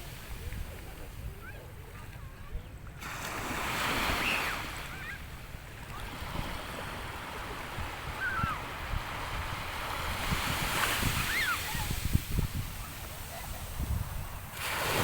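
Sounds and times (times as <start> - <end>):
sea waves washing ashore: 0.0 - 15.0
wind buffeting microphone: 6.3 - 15.0.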